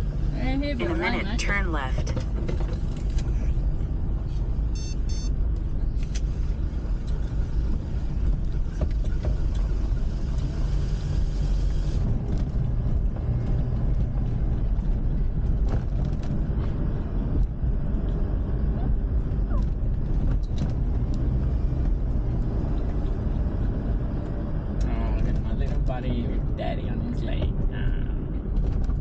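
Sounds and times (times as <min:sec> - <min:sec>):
car engine and tyre rumble: 0:00.0 - 0:29.0
short electronic beep: 0:04.7 - 0:05.4
road hiss: 0:09.6 - 0:12.1.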